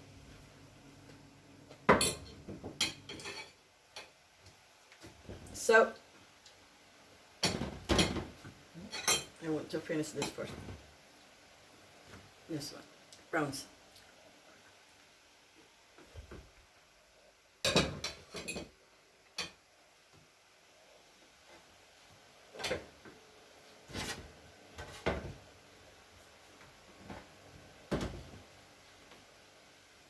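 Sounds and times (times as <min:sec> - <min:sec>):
dishes and cutlery clinking: 0:01.9 - 0:04.2.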